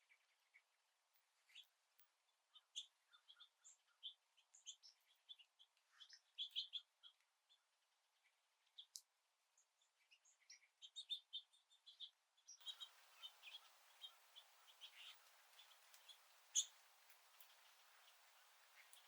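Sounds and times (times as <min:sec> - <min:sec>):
songbirds chirping: 0:01.5 - 0:19.0
background hiss: 0:12.6 - 0:19.0.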